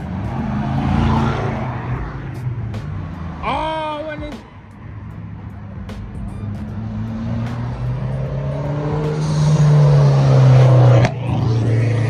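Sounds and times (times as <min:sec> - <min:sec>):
car accelerating past: 0:00.0 - 0:03.4, 0:06.6 - 0:12.0.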